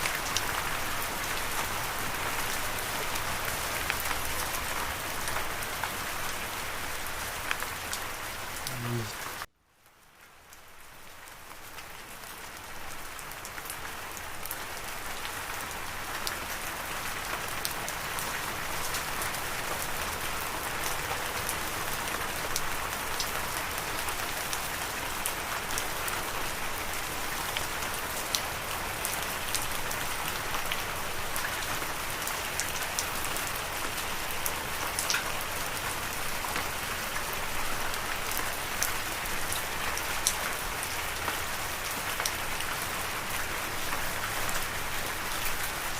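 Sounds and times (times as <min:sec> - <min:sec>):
steady rain hiss: 0:00.0 - 0:45.9.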